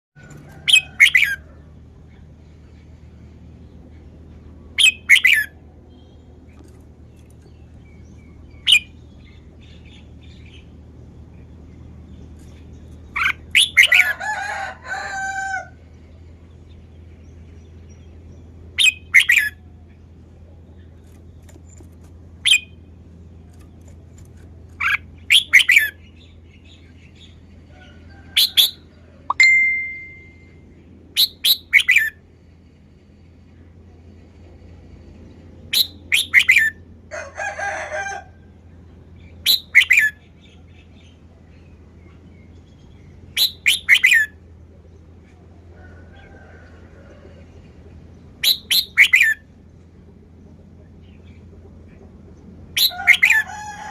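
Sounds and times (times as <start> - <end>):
bulbul singing: 7.4 - 10.8, 16.6 - 19.8, 24.8 - 27.4, 28.4 - 30.6, 39.3 - 41.2, 42.6 - 44.4, 48.4 - 49.5.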